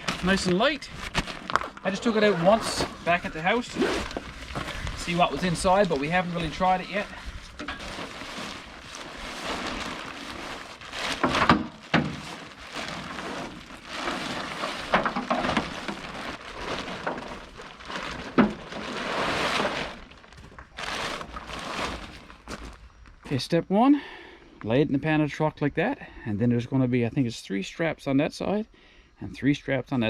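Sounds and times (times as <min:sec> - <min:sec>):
nylon tent fabric rustling: 0:00.0 - 0:22.8.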